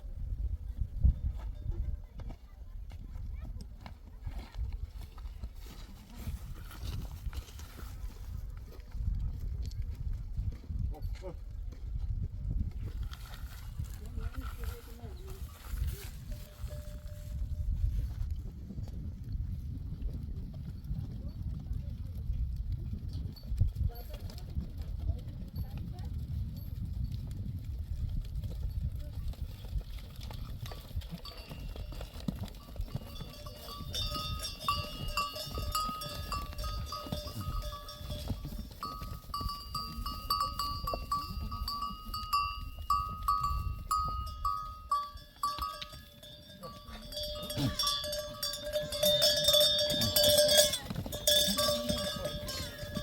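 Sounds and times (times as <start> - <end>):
livestock bells clinking: 15.4 - 17.6, 28.4 - 53.0.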